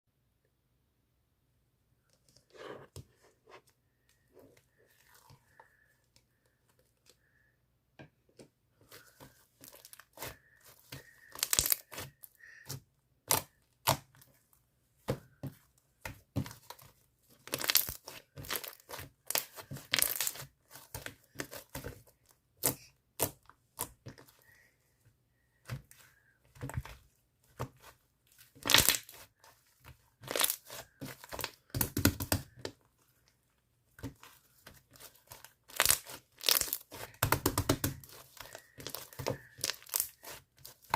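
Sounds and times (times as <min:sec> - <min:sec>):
plastic film crinkling and tearing: 0:34.9 - 0:37.2.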